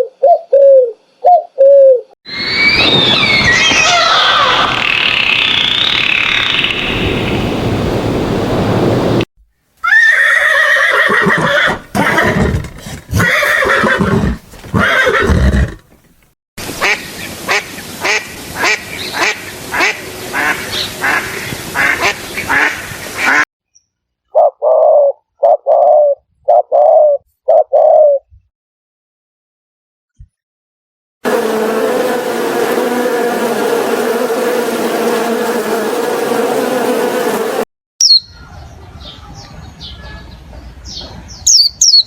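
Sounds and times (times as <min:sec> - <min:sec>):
animal calls: 0:00.0 - 0:06.8.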